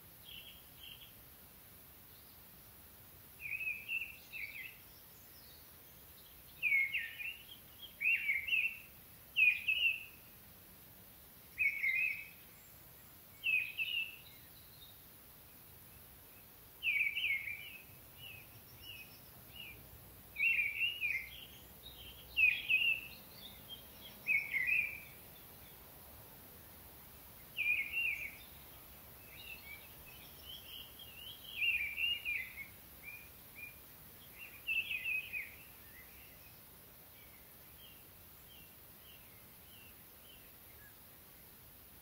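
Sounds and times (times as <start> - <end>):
faint background noise: 0.0 - 42.0
songbird singing high phrases: 0.1 - 1.2, 2.0 - 10.5, 11.3 - 41.6.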